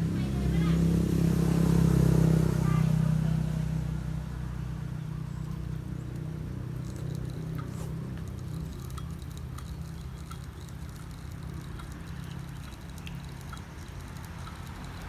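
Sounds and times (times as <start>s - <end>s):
faint light ticks: 5.4s - 15.0s.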